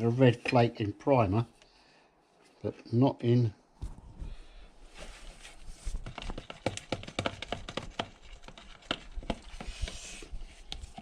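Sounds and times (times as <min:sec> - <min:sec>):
clicks and taps of small objects: 0:06.0 - 0:10.0.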